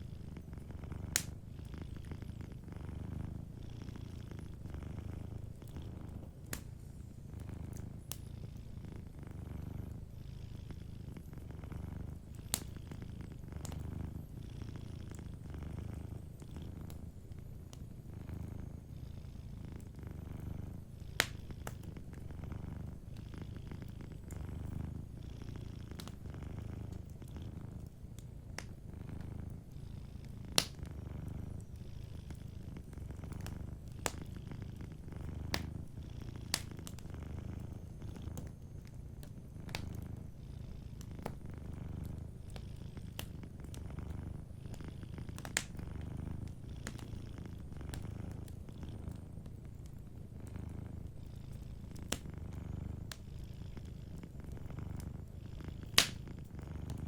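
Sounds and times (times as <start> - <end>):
cat purring: 0.0 - 57.0
wood fire pops and crackles: 0.9 - 1.4, 5.4 - 6.8, 7.7 - 8.3, 11.8 - 14.2, 20.4 - 22.7, 25.9 - 29.4, 30.5 - 31.7, 32.3 - 40.2, 41.0 - 44.4, 45.2 - 50.8, 51.9 - 53.2, 55.8 - 57.0.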